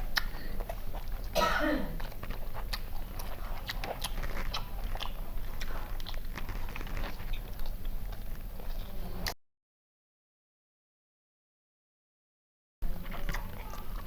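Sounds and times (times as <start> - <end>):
chewing wet clicks and crunches: 0.0 - 1.4, 2.0 - 9.4, 12.8 - 14.0
steady low hum: 0.0 - 9.4.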